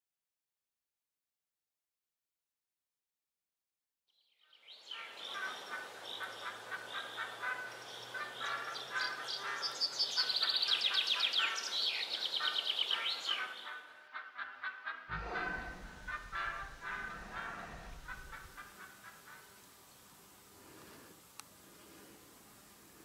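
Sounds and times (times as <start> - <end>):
small birds chirping and singing: 4.2 - 13.8.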